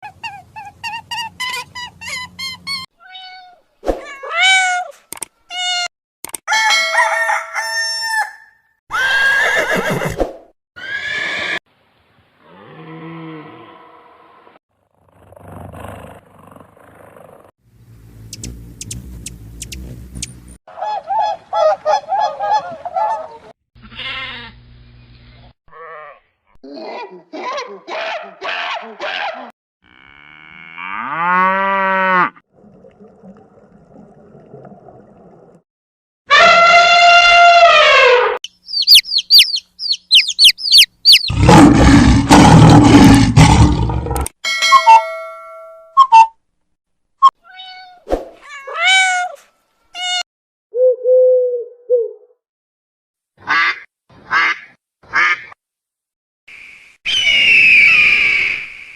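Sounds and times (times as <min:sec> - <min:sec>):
large animal roaring: 0:12.4 - 0:14.6, 0:41.3 - 0:44.3
sharp bird chirps: 0:18.3 - 0:20.6, 0:38.4 - 0:41.4, 0:56.5 - 0:58.9
loud repeated animal calls: 0:36.3 - 0:43.6
animal calls: 0:37.8 - 0:43.1.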